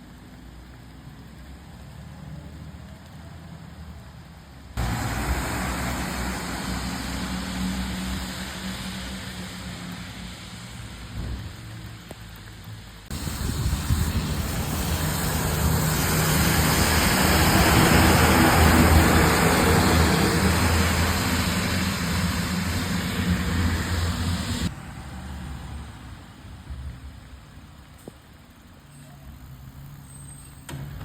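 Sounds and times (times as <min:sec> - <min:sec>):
garbage truck engine running: 0:13.1 - 0:24.7.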